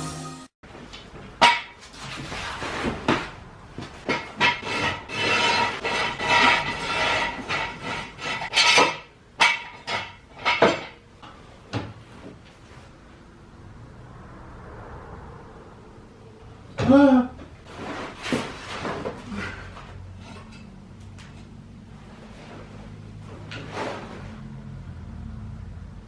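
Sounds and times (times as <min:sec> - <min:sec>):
metal tools clanking and rattling: 0:04.0 - 0:11.4.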